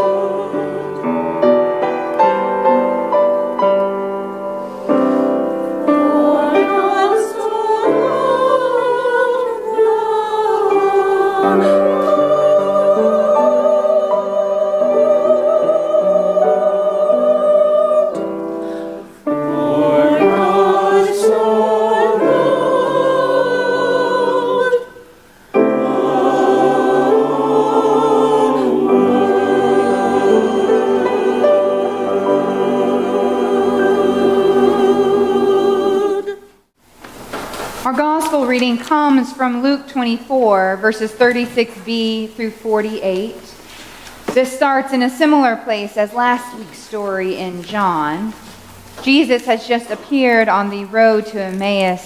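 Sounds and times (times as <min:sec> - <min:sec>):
church choir singing: 0:00.0 - 0:36.7.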